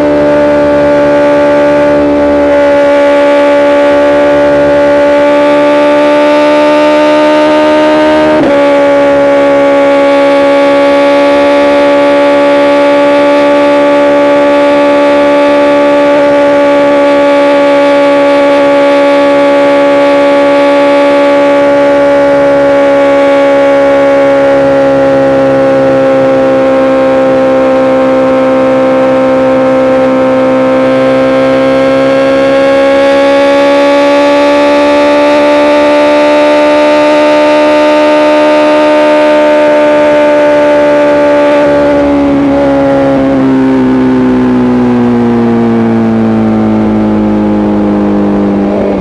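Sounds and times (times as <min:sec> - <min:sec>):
motorcycle engine at high revs: 0:00.0 - 0:49.0.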